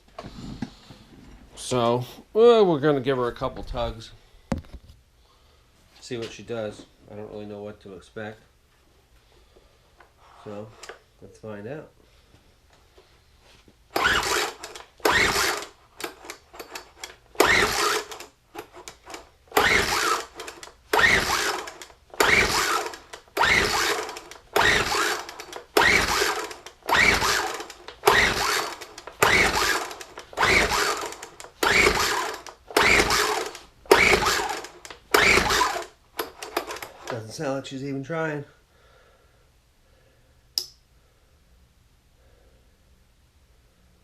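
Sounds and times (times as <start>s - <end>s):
leaf blower recoil starter pulls: 10.4s - 11.0s, 13.9s - 37.4s.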